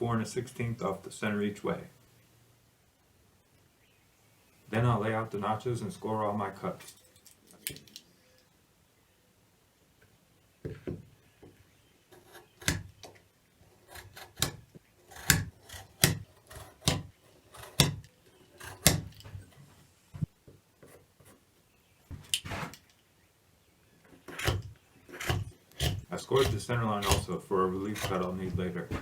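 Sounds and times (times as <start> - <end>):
knife scraping wood: 12.1 - 13.0, 13.7 - 19.7, 22.1 - 22.9, 24.2 - 29.0.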